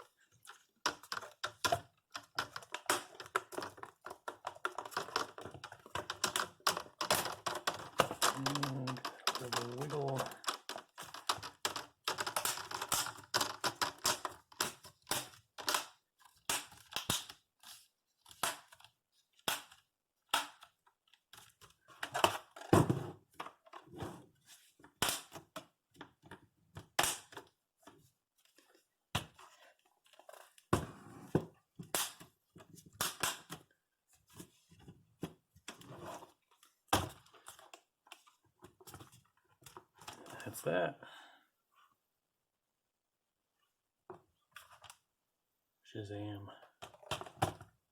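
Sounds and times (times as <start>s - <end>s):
plastic handling rustle: 0.1s - 14.8s.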